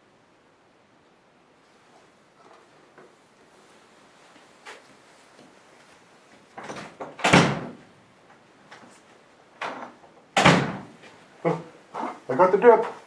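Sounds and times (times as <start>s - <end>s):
door banging shut: 6.6s - 7.8s, 9.6s - 11.0s.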